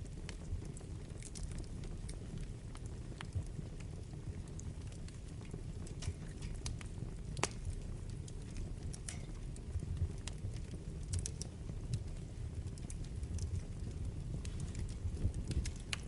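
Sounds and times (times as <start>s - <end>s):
fire crackling and popping: 0.0s - 16.0s
low rumble of flames: 0.0s - 16.0s.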